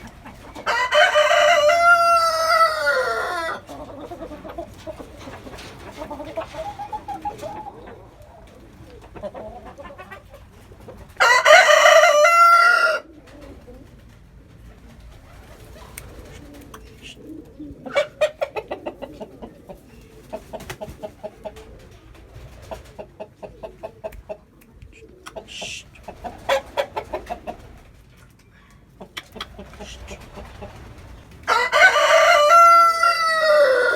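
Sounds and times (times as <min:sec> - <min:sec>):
hens clucking: 0:00.0 - 0:33.9
rooster crowing: 0:00.6 - 0:03.7, 0:11.2 - 0:13.1, 0:31.5 - 0:33.9.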